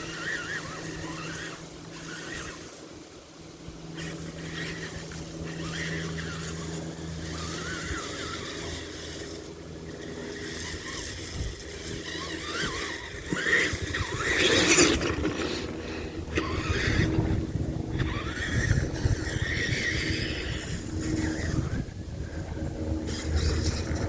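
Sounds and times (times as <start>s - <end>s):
electric motor whining: 0.0s - 24.0s
toy truck crashing through brush: 4.0s - 17.2s.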